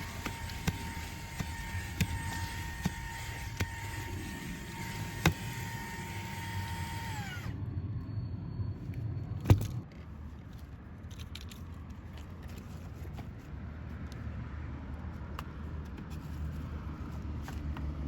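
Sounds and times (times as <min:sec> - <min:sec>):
handheld vacuum whining: 0:00.0 - 0:07.6.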